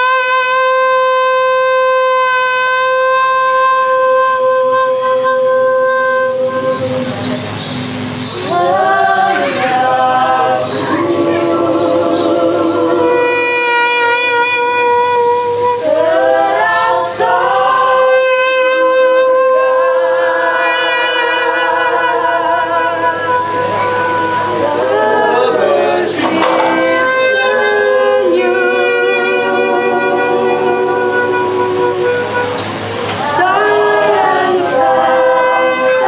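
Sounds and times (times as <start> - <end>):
voices singing sustained tones: 0.0 - 36.0
noisy flurry: 6.2 - 13.6, 20.5 - 36.0.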